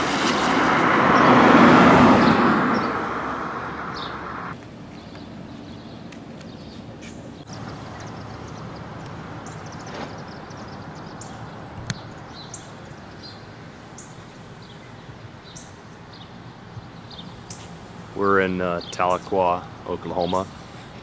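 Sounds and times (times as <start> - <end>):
bird chirping: 3.8 - 21.0.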